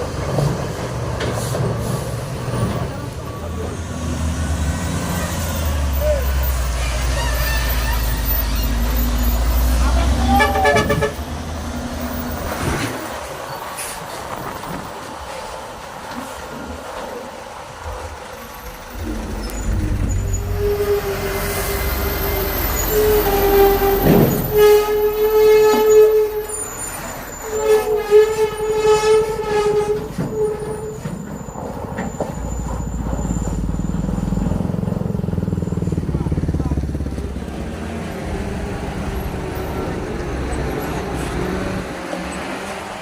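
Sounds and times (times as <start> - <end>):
truck engine rumbling: 0.0 - 43.0
loud air horn blasts: 10.1 - 11.3, 20.4 - 26.6, 27.4 - 31.0.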